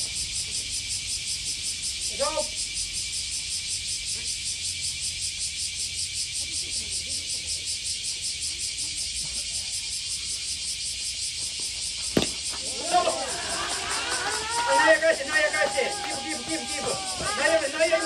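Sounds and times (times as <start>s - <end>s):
cicadas droning: 0.0s - 18.0s
faint distant voices: 12.2s - 18.0s.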